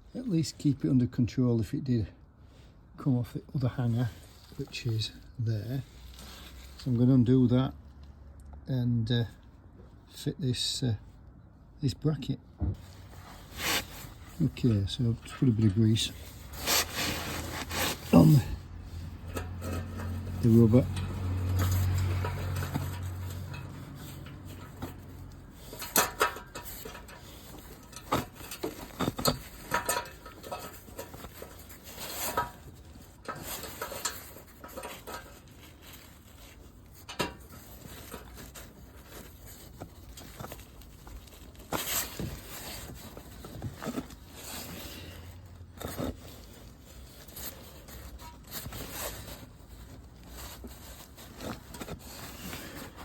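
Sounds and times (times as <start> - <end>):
handling noise: 12.6 - 53.0.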